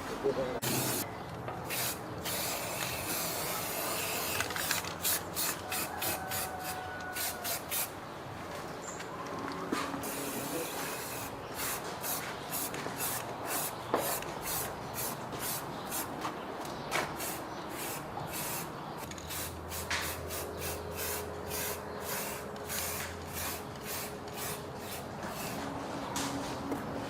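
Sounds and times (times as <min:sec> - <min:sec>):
paint sprayer hissing bursts: 0:00.6 - 0:01.0, 0:01.7 - 0:07.9, 0:10.0 - 0:16.1, 0:17.2 - 0:25.6.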